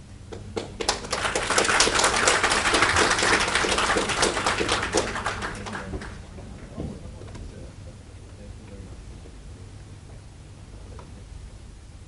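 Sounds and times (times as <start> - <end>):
audience applauding: 0.6 - 6.3.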